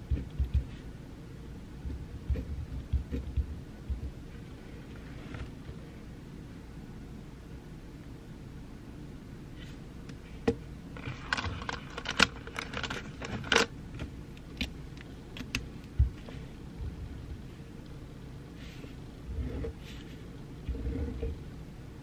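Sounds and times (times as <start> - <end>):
low room hiss: 0.0 - 22.0
small objects clicking and rustling: 11.0 - 13.7.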